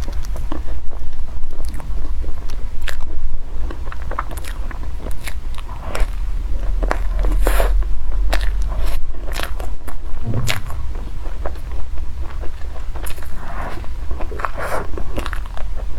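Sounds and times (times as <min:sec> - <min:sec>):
rustling noise: 0:10.2 - 0:11.4.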